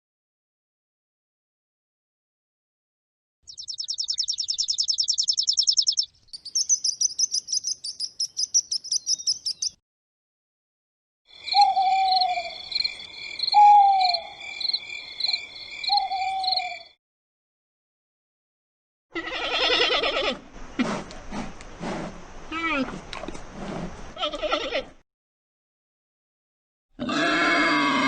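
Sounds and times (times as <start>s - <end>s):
bird trilling and chirping: 3.5s - 9.8s, 11.5s - 16.9s.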